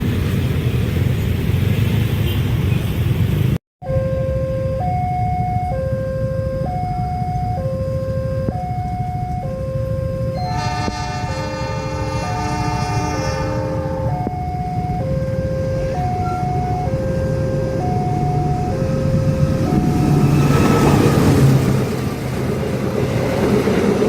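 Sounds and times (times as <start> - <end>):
level crossing alarm two notes: 3.8 - 20.9
richer two-tone alarm: 3.8 - 21.2
steady low rumble: 14.0 - 24.0.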